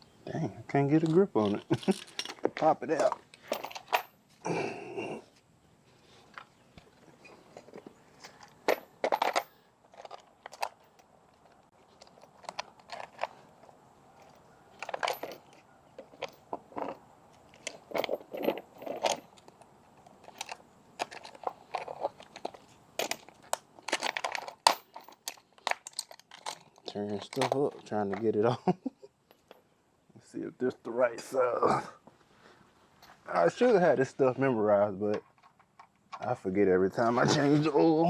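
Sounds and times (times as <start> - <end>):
tools clicking and knocking: 14.2 - 28.2.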